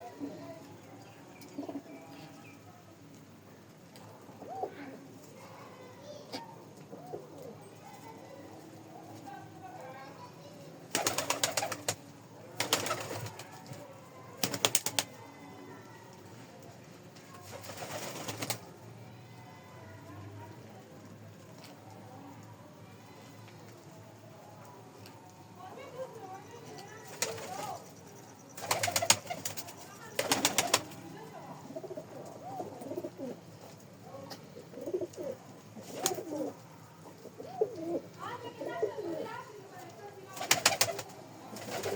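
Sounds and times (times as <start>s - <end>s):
pigeons cooing: 4.3s - 5.0s, 31.6s - 33.5s, 34.6s - 39.3s
pigeon wings clattering: 10.9s - 12.0s, 12.6s - 13.8s, 14.4s - 15.2s, 17.4s - 18.7s, 27.0s - 27.8s, 28.6s - 31.0s, 35.8s - 36.4s, 40.3s - 41.9s.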